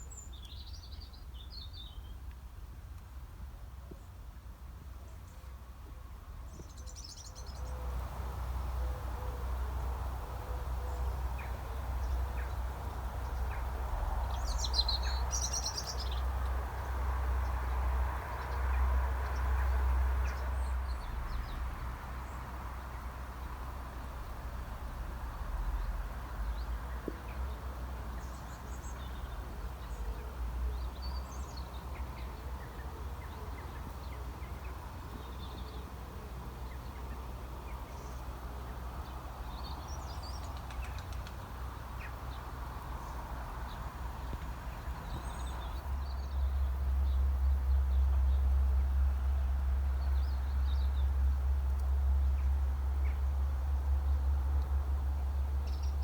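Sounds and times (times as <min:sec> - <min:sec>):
steady low rumble: 0:18.8 - 0:30.0
birds chirping: 0:43.0 - 0:48.4.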